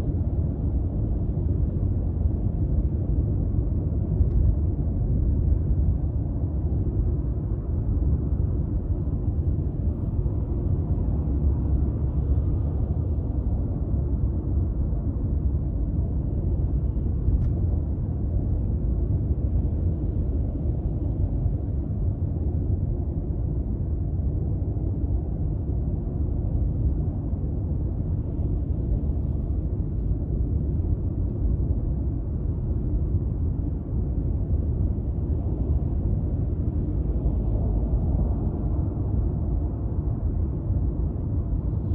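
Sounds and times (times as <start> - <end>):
road and tyre rumble: 24.8 - 41.9.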